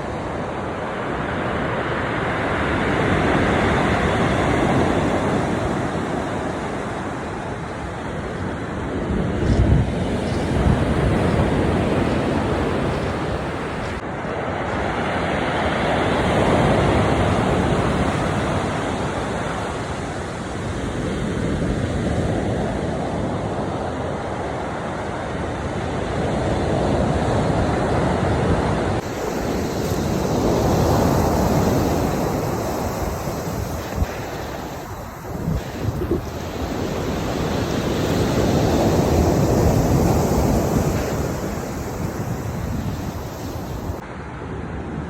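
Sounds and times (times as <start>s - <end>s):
wind on microphone: 0.0s - 14.0s, 26.0s - 45.0s
sea waves washing ashore: 0.0s - 45.0s.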